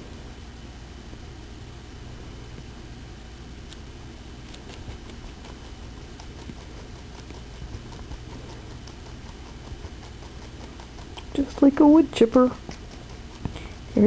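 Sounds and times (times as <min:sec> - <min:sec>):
low steady hum: 0:00.0 - 0:14.0
rabbit crunching food: 0:03.6 - 0:14.0.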